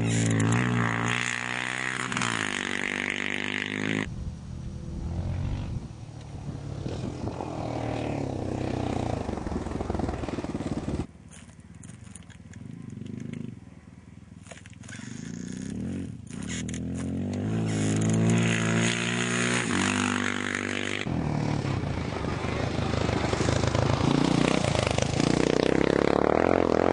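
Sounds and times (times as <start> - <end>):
motorcycle engines racing: 0.0 - 26.9
engine revving accelerating: 15.0 - 26.9.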